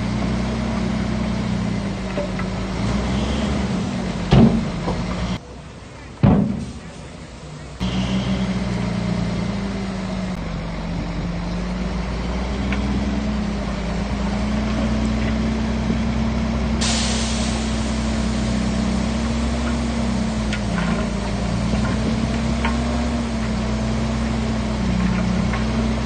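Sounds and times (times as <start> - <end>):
bulldozer diesel engine: 0.0 - 26.0
loud steady hiss: 16.8 - 20.4.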